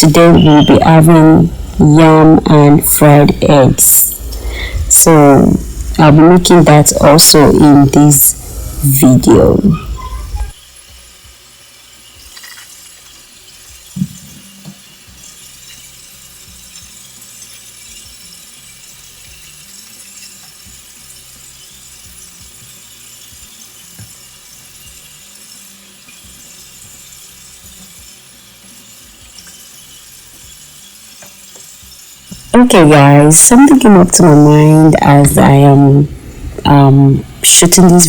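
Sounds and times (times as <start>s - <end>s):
kitchen tap running: 5.5s - 38.0s
dishes and utensils clinking: 12.2s - 16.0s.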